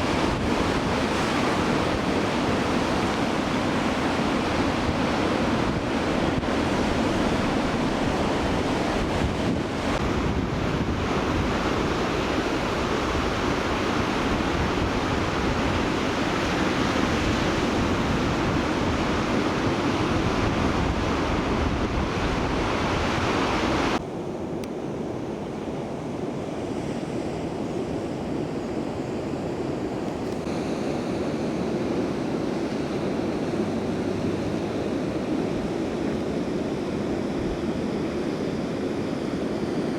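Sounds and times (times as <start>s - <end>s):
wind buffeting microphone: 0.0s - 24.0s
ocean surf rushing: 0.0s - 39.9s.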